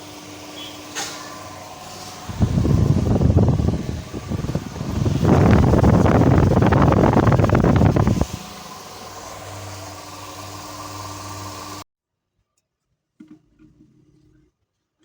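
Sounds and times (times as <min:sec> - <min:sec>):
fan motor rattling and humming: 0:00.0 - 0:11.8.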